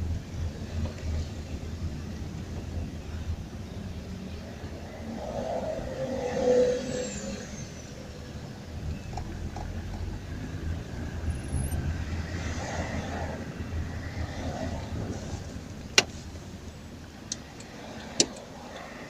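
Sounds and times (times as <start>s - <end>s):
car engine low rumble: 0.0s - 19.0s.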